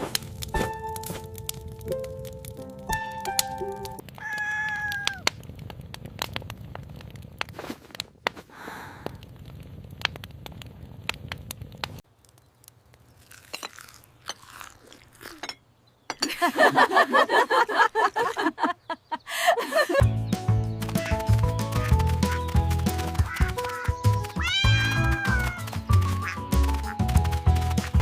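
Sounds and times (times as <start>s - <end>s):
chewing and crunching food: 12.0s - 15.6s, 20.8s - 28.0s.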